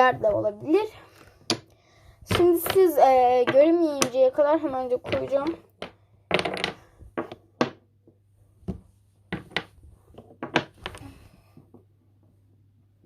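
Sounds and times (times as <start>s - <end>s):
wooden blocks clacking: 2.3s - 7.8s, 9.3s - 11.1s.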